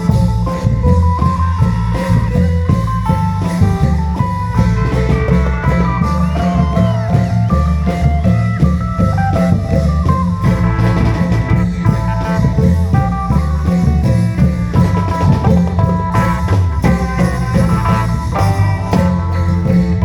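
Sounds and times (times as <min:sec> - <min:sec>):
heavy bass line: 0:00.0 - 0:20.0
melodic lead sliding between notes: 0:00.0 - 0:20.0
steady long drums: 0:00.0 - 0:20.0.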